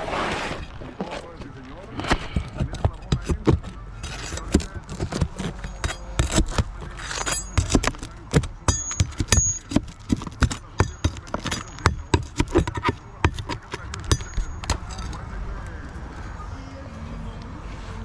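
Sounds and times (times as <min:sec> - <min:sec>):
metal tools striking roofing: 0:01.9 - 0:15.3.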